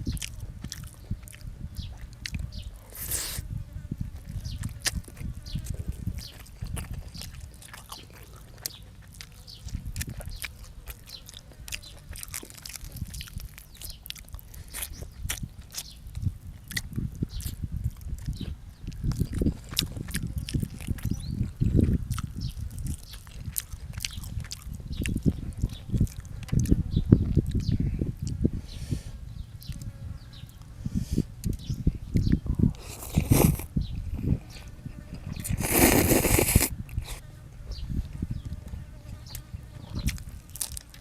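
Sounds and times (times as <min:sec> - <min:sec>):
person chewing food: 0:00.0 - 0:03.4, 0:04.2 - 0:28.4, 0:31.4 - 0:33.7, 0:35.3 - 0:37.3, 0:40.0 - 0:41.0
wet mouth clicks: 0:04.5 - 0:28.4, 0:31.4 - 0:33.7, 0:35.4 - 0:37.2.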